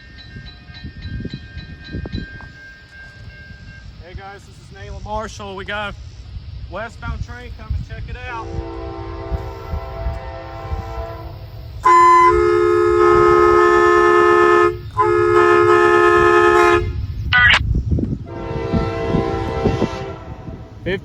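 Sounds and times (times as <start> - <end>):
train rumble: 0.0 - 21.0
locomotive air horn blasts: 8.4 - 17.0, 18.2 - 20.9.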